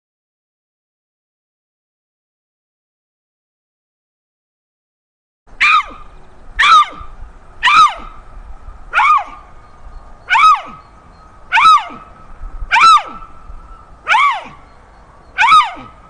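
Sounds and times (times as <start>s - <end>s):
cheetah chirping: 5.6s - 8.2s, 8.9s - 16.0s.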